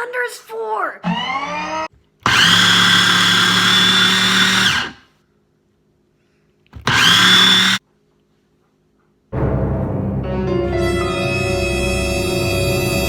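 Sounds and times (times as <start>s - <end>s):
blender motor whining: 1.0s - 5.1s, 6.8s - 7.8s.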